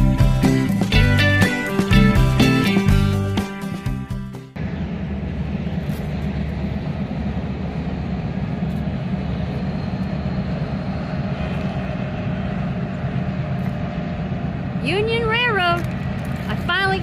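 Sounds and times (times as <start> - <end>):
music: 0.0 - 4.6
freight train rumbling: 4.5 - 17.0.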